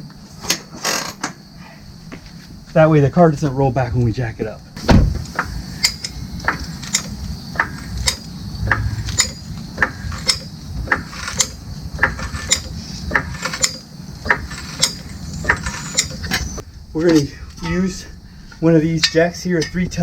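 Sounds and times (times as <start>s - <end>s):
hydraulic jack pumping: 4.8s - 17.3s.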